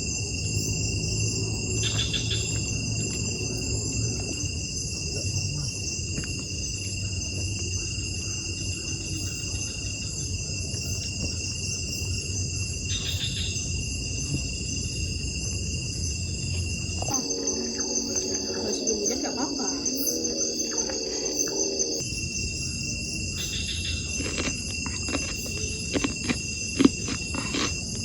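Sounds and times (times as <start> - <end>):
low rumbling noise: 0.0 - 6.1, 13.6 - 22.1
crickets chirping: 0.0 - 28.0.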